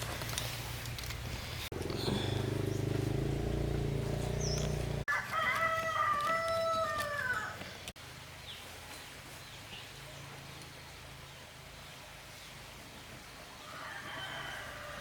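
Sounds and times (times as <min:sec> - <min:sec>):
rooster crowing: 0:05.0 - 0:07.6, 0:13.6 - 0:15.0.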